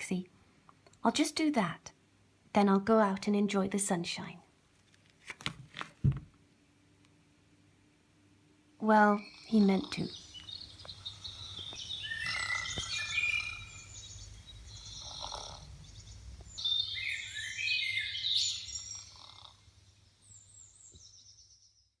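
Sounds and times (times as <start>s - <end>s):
songbirds chirping and trilling: 8.8s - 22.0s
soft snores: 14.7s - 15.8s, 18.8s - 19.6s.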